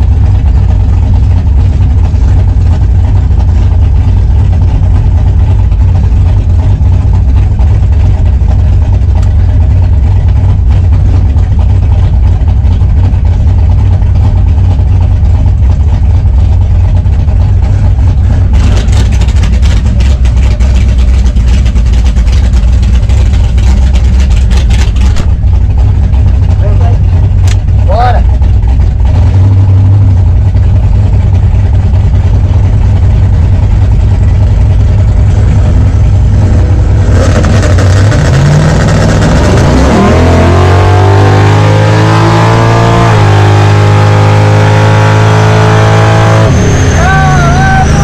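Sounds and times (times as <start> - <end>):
car engine idling: 0.0 - 48.0.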